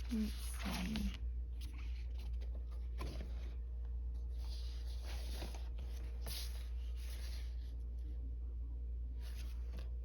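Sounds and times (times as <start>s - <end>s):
colored pencils being handled: 0.0s - 7.8s.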